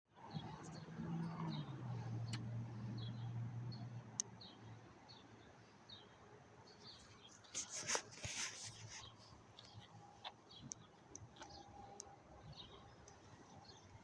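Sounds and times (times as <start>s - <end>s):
rustling: 7.3s - 9.8s.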